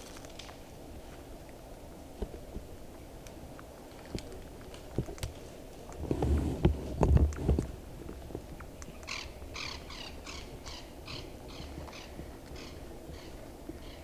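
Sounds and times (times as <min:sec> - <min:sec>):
low thumps and rustles: 0:03.7 - 0:08.7.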